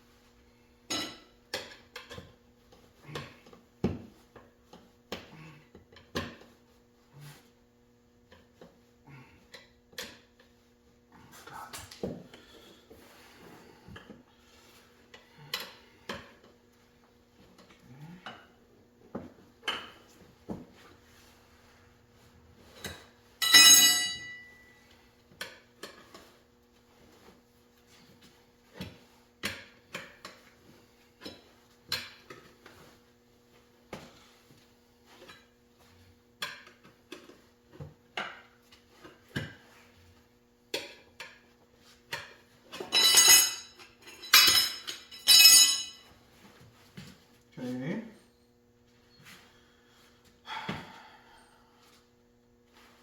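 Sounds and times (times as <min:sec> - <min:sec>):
metal tools clinking on metal: 0:23.4 - 0:24.7, 0:42.8 - 0:46.1
ringing metal clanks: 0:23.4 - 0:24.8, 0:42.9 - 0:46.1.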